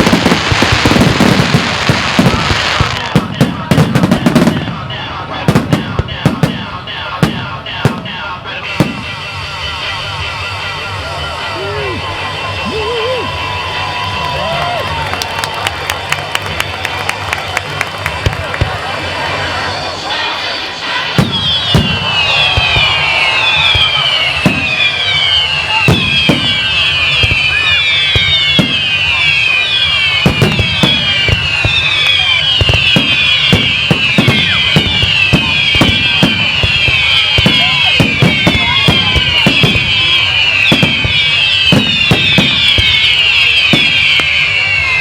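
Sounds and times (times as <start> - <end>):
falling firework whistles: 0.0 - 3.4, 8.6 - 14.3, 19.4 - 45.0
firework bangs: 0.0 - 11.2, 14.9 - 45.0.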